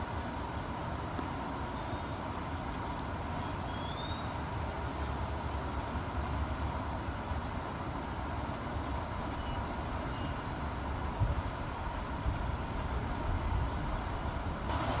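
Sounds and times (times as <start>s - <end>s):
low outdoor rumble: 0.0s - 15.0s
faint high bird chirps: 3.4s - 4.3s.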